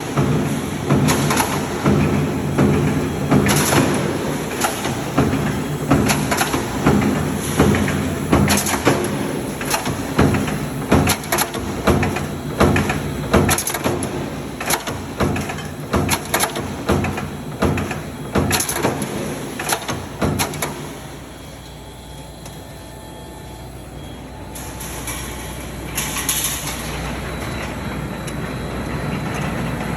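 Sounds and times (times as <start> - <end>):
sharp machine knocks: 0.0 - 20.9
machine hum: 0.0 - 29.9.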